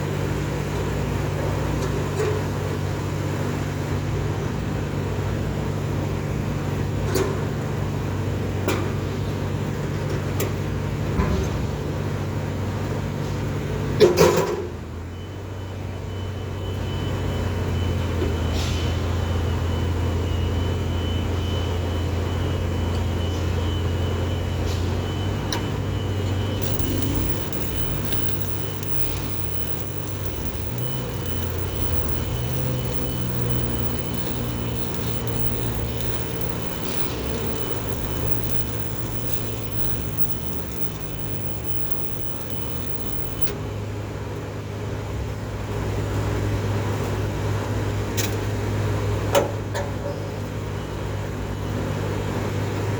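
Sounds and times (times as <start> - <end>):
welding arc hissing and crackling: 25.3 - 43.6
low machine hum: 25.8 - 43.6
sharp pops: 26.6 - 43.6.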